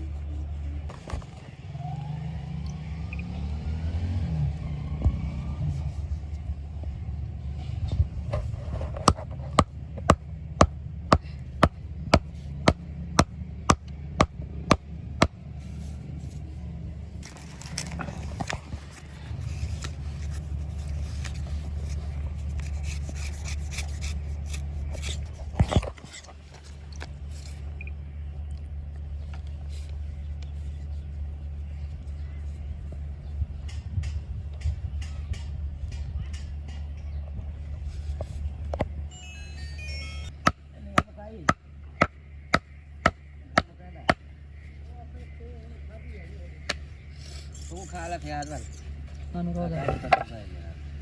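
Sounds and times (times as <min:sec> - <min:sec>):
low machine hum: 0:00.0 - 0:03.6, 0:05.9 - 0:51.0
rapid clicking and scraping: 0:17.2 - 0:27.7.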